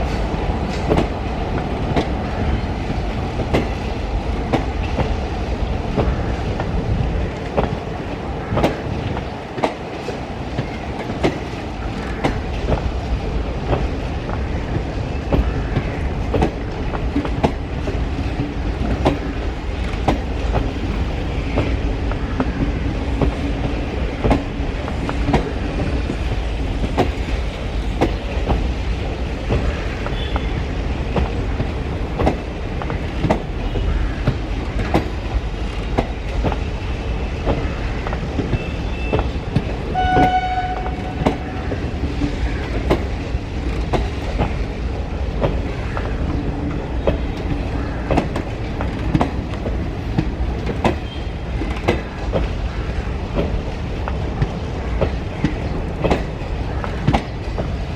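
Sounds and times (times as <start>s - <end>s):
train rumbling past: 0.0s - 57.9s
wheels clicking over rail joints: 0.0s - 57.9s.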